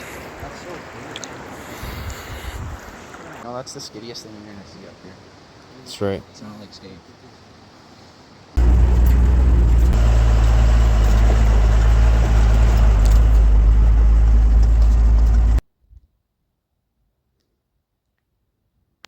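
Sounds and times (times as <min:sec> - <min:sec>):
loud engine running: 0:08.6 - 0:15.6.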